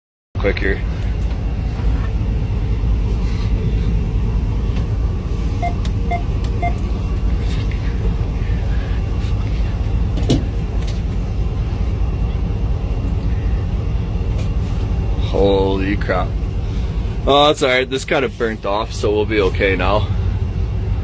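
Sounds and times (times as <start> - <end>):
locomotive cab rumble: 0.6 - 21.0
short beeps: 5.6 - 6.9.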